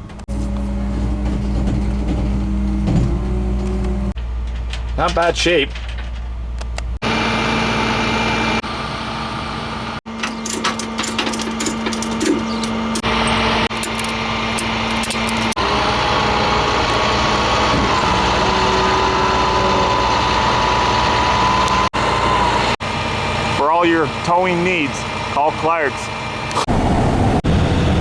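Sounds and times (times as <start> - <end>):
vehicle engine running: 0.0 - 4.8, 6.0 - 28.0
clicking and rattling: 4.4 - 6.9, 10.2 - 15.6.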